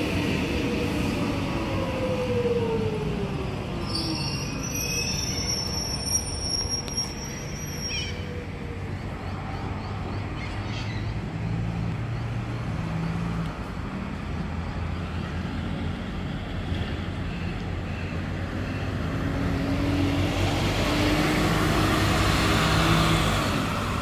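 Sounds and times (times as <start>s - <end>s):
electric train squealing: 3.7s - 8.3s.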